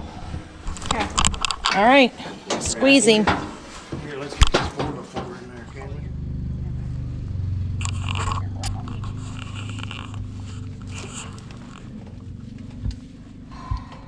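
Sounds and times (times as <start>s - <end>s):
low engine hum: 5.2s - 14.0s.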